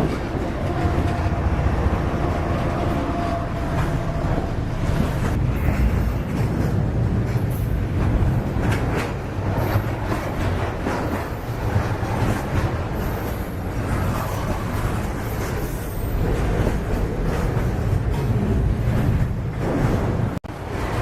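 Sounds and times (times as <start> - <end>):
freight train rumbling: 0.0 - 21.0.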